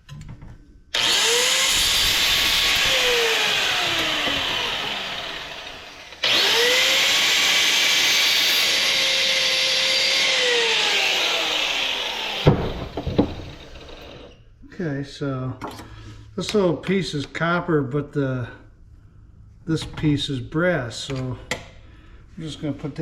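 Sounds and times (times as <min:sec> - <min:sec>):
power tool whirring: 0:00.9 - 0:14.4
sharp knocks: 0:12.4 - 0:13.7.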